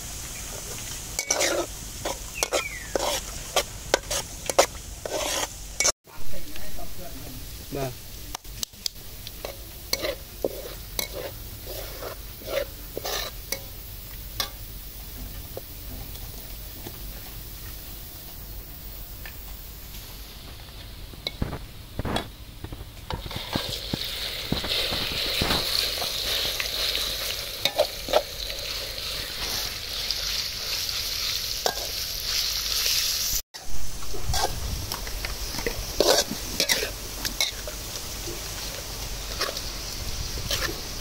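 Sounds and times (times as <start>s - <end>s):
food sizzling in a pan: 0.0s - 41.0s
utensil stirring and scraping: 1.2s - 5.9s, 9.3s - 13.7s, 34.0s - 34.6s, 35.2s - 37.8s.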